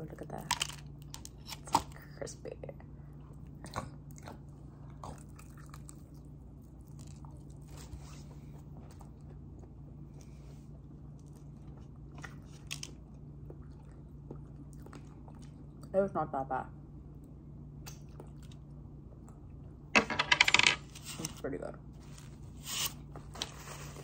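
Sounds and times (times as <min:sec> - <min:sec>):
person chewing crispy food: 0:03.6 - 0:07.9, 0:11.1 - 0:15.9.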